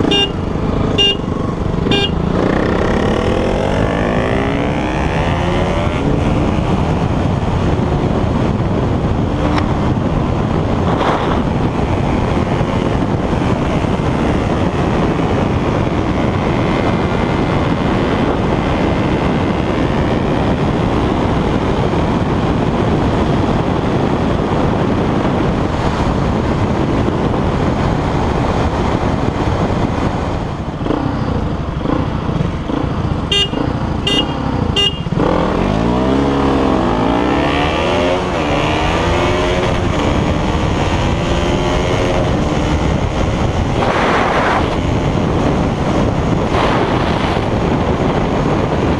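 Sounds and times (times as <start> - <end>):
vehicle horn beeps: 0.0 - 2.2, 33.3 - 35.2
motorcycle running: 0.0 - 48.9.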